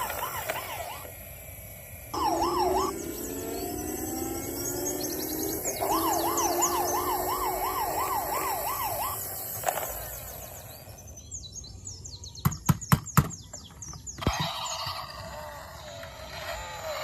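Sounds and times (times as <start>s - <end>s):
toy police siren warbling: 0.0s - 1.1s, 2.1s - 11.0s, 14.2s - 17.0s
electronic toy sound effects: 0.0s - 1.2s, 2.1s - 11.0s, 14.2s - 17.0s.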